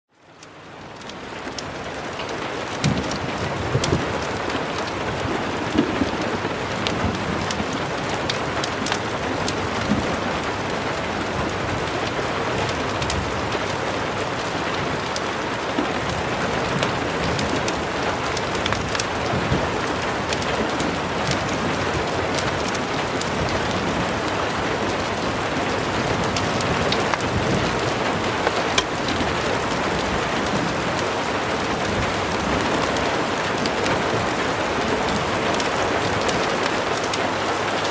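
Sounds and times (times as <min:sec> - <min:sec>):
heavy rain: 0:00.1 - 0:37.9
fireplace pops and crackles: 0:28.6 - 0:30.1.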